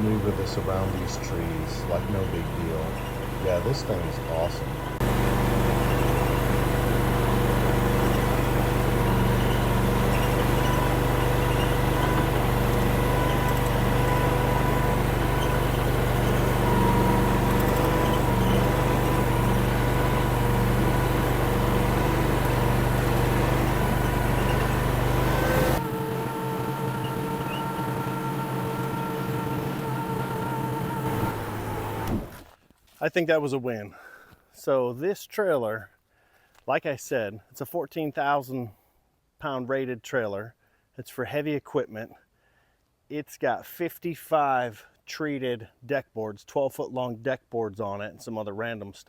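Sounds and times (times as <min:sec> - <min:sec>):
mini skid steer engine running: 0:00.0 - 0:32.6.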